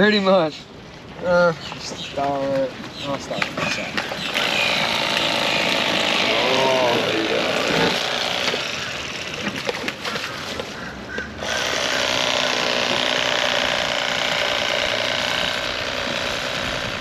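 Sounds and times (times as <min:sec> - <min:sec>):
electric knife blades buzzing: 0:04.2 - 0:09.5, 0:11.4 - 0:17.0.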